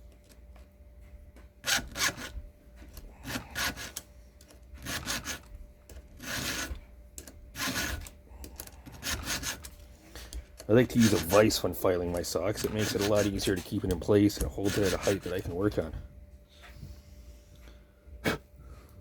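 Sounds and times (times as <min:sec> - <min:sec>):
file rasping on chainsaw chain: 0:01.6 - 0:02.3, 0:03.2 - 0:04.0, 0:04.8 - 0:05.4, 0:06.2 - 0:06.8, 0:07.6 - 0:08.1, 0:08.9 - 0:09.8, 0:10.7 - 0:15.9.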